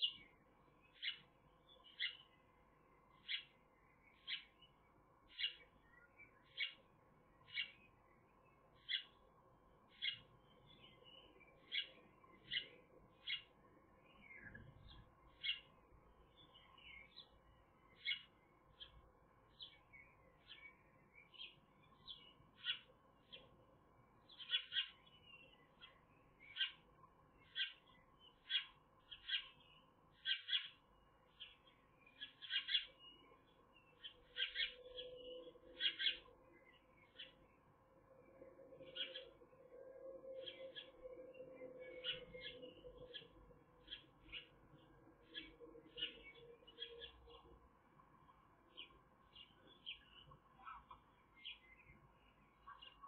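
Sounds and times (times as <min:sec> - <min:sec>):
bird chirping: 0:00.0 - 0:53.0
bird twittering: 0:34.0 - 0:37.4, 0:38.8 - 0:39.4, 0:40.3 - 0:44.6.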